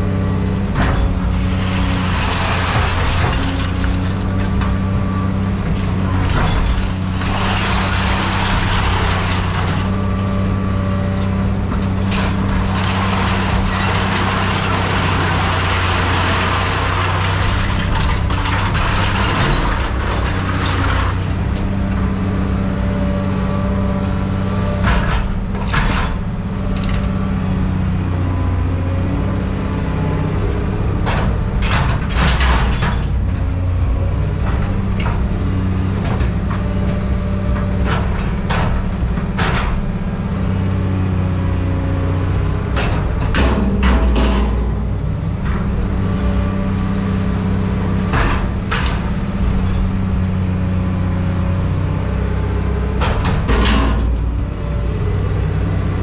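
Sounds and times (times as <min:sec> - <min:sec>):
diesel machinery running: 0:00.0 - 0:56.0
metal knocks and clanks: 0:11.8 - 0:22.0, 0:53.0 - 0:54.4.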